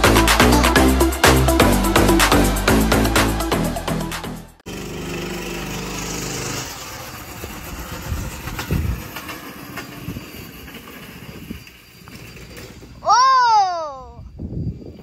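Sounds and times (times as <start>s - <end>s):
go-kart engine running: 4.6s - 13.0s
rough scraping: 4.7s - 13.0s.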